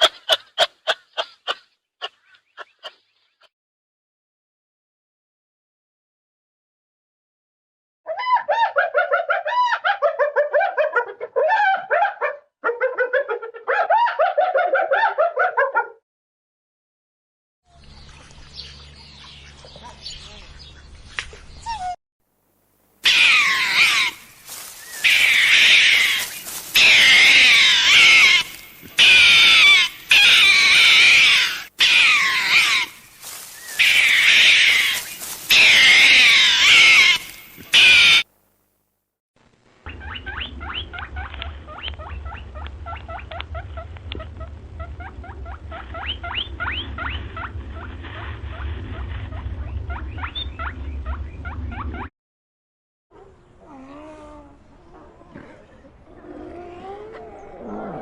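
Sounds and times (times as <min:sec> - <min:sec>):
animal yelping: 0:08.1 - 0:16.0, 0:21.6 - 0:22.0, 0:23.0 - 0:38.2, 0:39.9 - 0:52.1
animal high wavering cries: 0:23.0 - 0:33.0, 0:33.6 - 0:38.2, 0:56.2 - 0:58.0.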